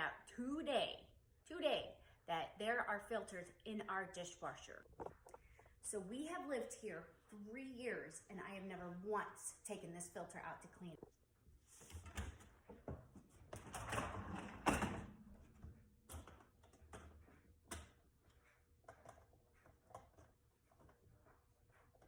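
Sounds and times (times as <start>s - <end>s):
dishwasher rack sliding out: 13.5s - 15.2s
small clicks and knocks: 15.6s - 21.3s.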